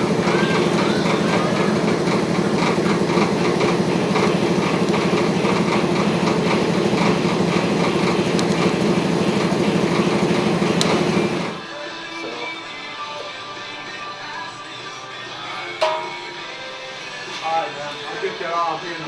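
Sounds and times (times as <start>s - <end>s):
welding arc crackling and buzzing: 0.0s - 11.6s.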